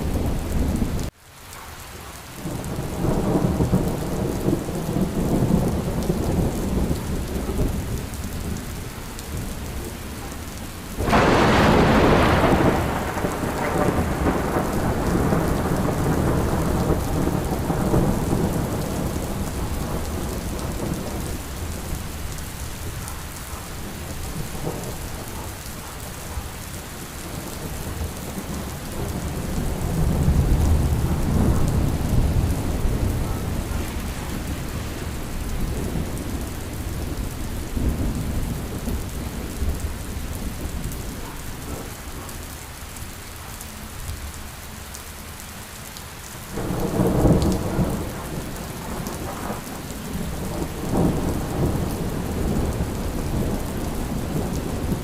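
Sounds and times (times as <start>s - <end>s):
steady rain: 0.0s - 55.0s
thunder rumbling: 2.4s - 42.4s, 46.5s - 55.0s
thunderclap: 11.0s - 21.9s, 27.3s - 41.9s, 46.6s - 55.0s.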